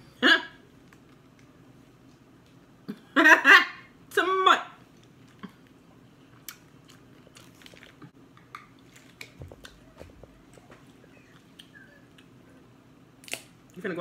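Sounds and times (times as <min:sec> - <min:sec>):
quiet chewing: 0:04.9 - 0:12.6.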